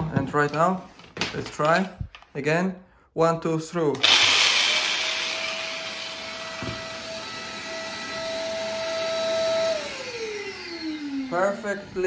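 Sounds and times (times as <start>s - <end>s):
workshop vacuum whining: 3.9s - 12.0s.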